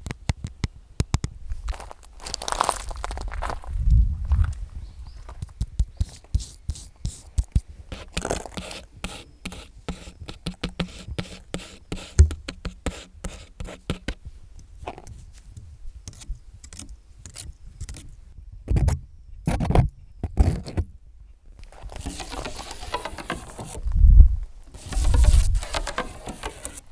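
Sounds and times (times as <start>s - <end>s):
fingernails tapping and scratching: 5.4s - 18.2s, 21.6s - 23.9s, 24.7s - 26.9s
heavier knocks and scrapes: 21.7s - 24.0s, 24.7s - 26.9s.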